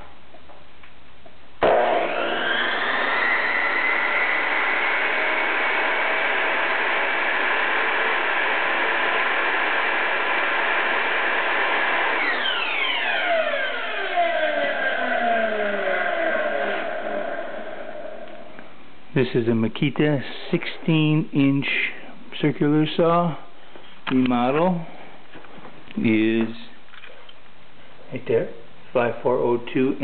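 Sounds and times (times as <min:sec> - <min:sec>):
circular saw motor whining: 0:01.6 - 0:18.7.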